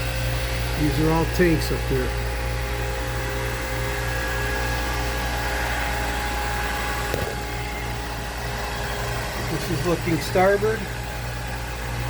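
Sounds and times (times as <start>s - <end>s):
faint steady whines: 0.0s - 12.0s
low machinery hum: 0.0s - 12.0s.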